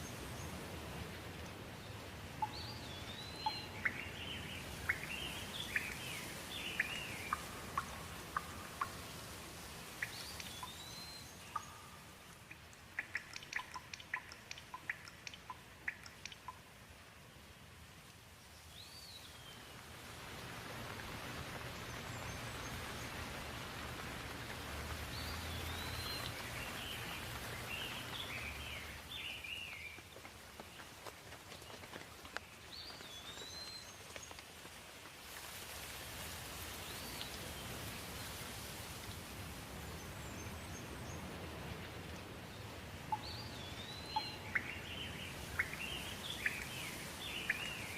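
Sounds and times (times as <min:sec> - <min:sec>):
close raindrops tapping: 0:00.0 - 0:47.9
rain falling: 0:00.0 - 0:47.9
bird chirping: 0:01.8 - 0:09.2, 0:09.9 - 0:16.6, 0:25.1 - 0:30.0, 0:43.1 - 0:47.9.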